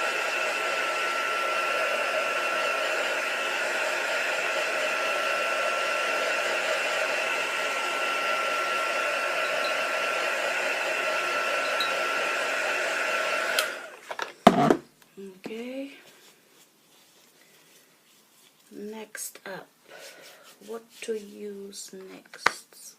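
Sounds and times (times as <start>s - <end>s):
electric dryer blowing: 0.0s - 14.0s.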